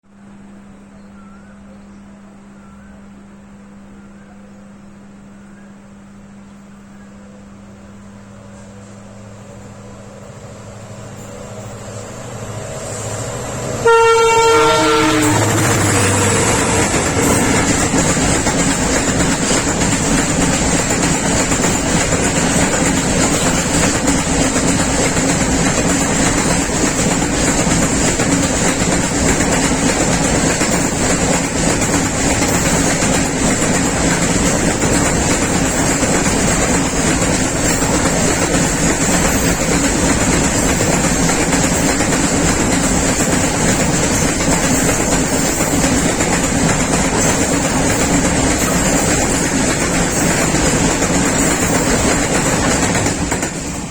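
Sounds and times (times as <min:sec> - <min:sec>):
freight train rumbling past: 0:07.1 - 0:53.9
wheels clattering over rail joints: 0:14.1 - 0:53.9.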